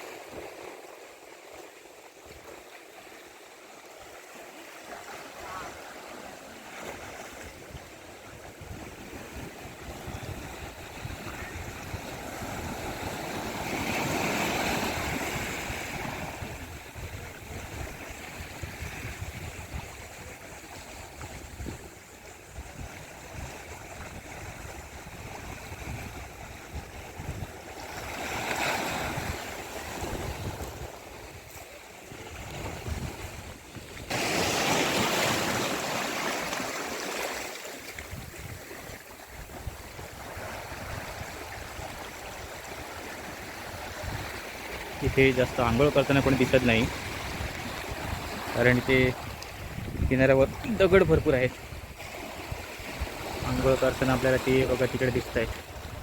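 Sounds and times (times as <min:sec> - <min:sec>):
waves breaking on shore: 0:00.0 - 0:56.0
wind rumbling on microphone: 0:07.0 - 0:34.2, 0:38.0 - 0:54.1, 0:54.9 - 0:56.0.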